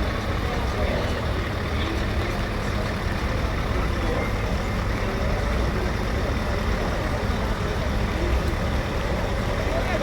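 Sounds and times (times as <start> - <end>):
truck engine rumbling: 0.0 - 10.0.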